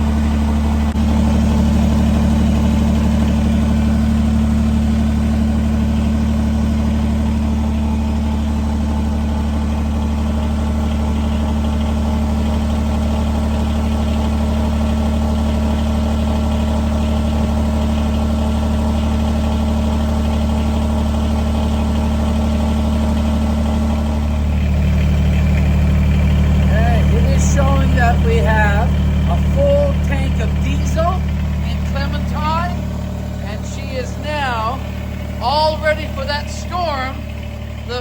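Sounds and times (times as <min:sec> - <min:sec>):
vehicle engine idling: 0:00.0 - 0:38.0.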